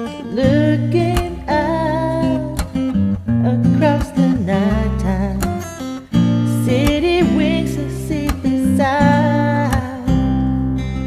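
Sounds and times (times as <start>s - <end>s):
pop ballad instrumental: 0.0s - 11.0s.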